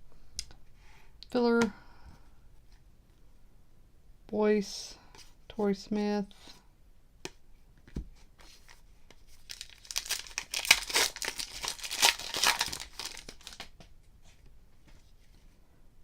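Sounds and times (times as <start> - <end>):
plastic wrapper crinkling and tearing: 9.3 - 13.8.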